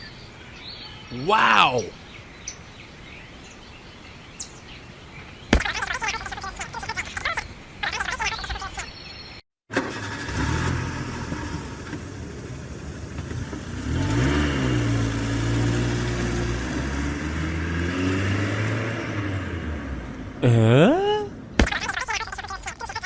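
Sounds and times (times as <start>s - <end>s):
engine running: 9.7s - 20.4s.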